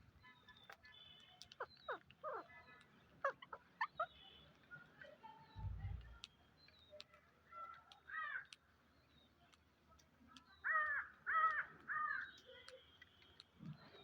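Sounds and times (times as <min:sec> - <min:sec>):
harsh cawing bird calls: 0:08.0 - 0:08.7, 0:10.6 - 0:12.4.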